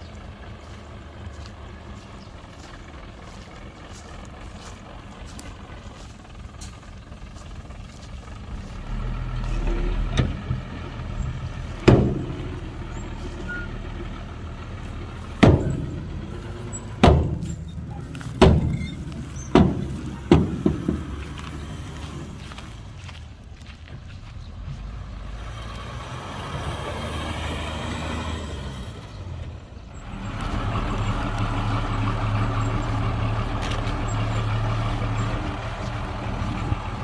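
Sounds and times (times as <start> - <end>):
heavy diesel machinery running: 0.0 - 37.0
loud metallic clanks and bangs: 11.8 - 12.8, 15.2 - 21.3.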